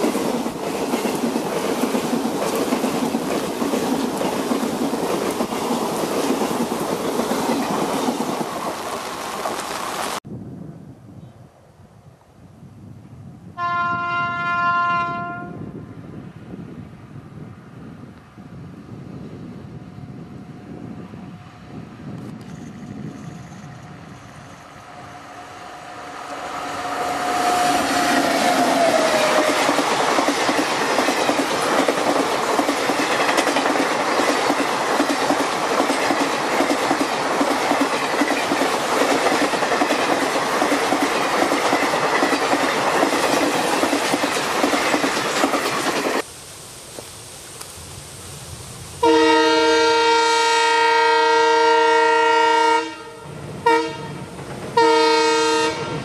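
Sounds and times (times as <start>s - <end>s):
train horn dropping in pitch: 13.6s - 15.7s, 25.0s - 29.5s, 49.0s - 56.0s
long multi-tone train horn: 13.6s - 15.9s, 25.0s - 29.7s, 49.0s - 56.0s.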